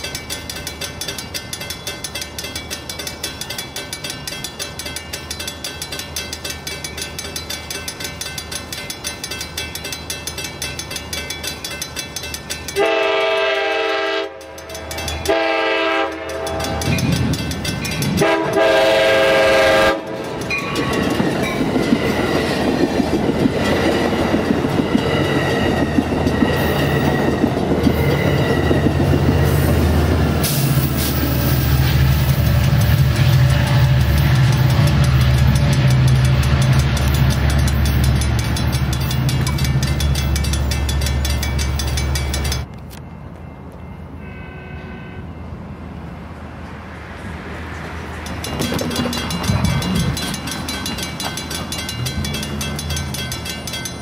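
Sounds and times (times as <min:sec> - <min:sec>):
train wheels clattering: 0:00.0 - 0:43.8, 0:47.7 - 0:54.0
crossing bell ringing: 0:00.0 - 0:45.8, 0:47.7 - 0:54.0
train horn: 0:12.8 - 0:17.0, 0:18.2 - 0:20.4, 0:44.2 - 0:45.4.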